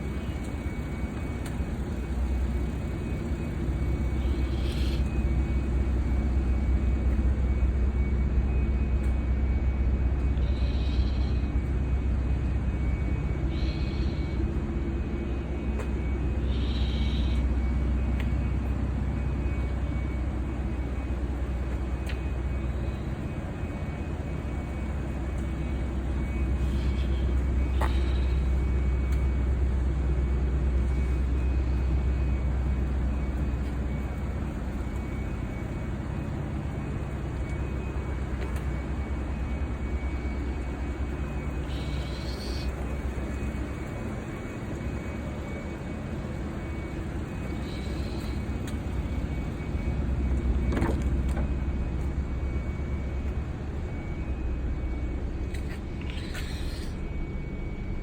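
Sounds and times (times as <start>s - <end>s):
low vehicle rumble: 0.0s - 58.0s
faint high squeaks: 55.5s - 57.2s.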